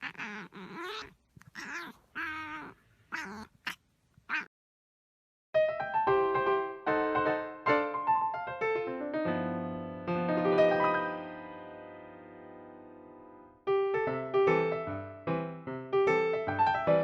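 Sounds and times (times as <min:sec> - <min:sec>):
piano-like keyboard music: 0:05.6 - 0:17.0.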